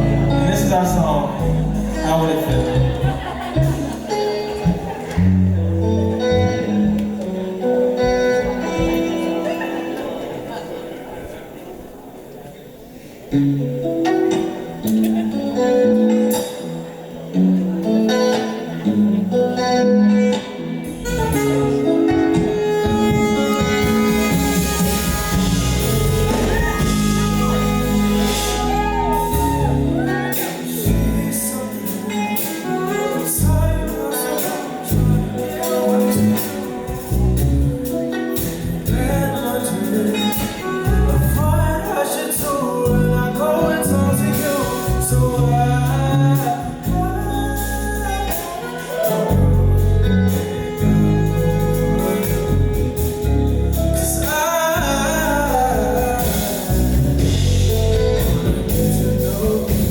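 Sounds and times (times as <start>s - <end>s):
live band playing: 0.0s - 59.9s
person singing: 17.8s - 59.9s.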